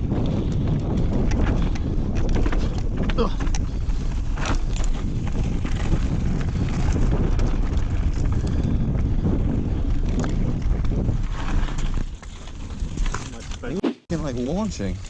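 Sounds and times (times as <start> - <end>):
bike rattling over rough ground: 0.0 - 15.0
wind on camera microphone: 0.0 - 15.0.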